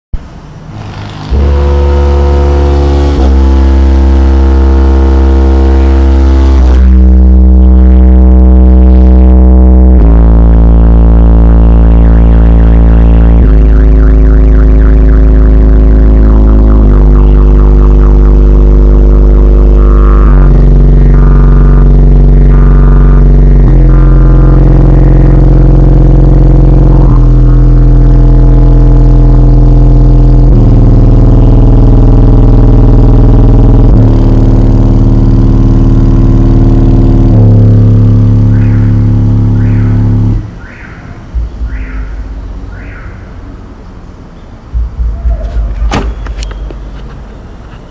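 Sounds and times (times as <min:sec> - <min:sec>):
deep subwoofer bass notes: 0:00.1 - 0:47.9.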